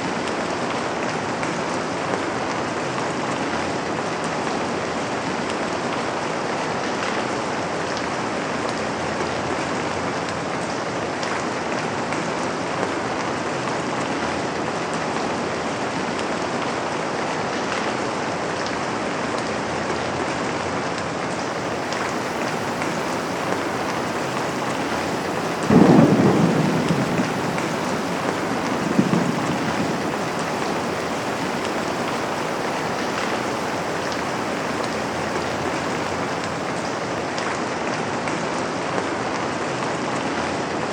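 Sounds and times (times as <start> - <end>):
rain on a window: 21.0 - 37.6
thunder rumbling: 21.2 - 37.4.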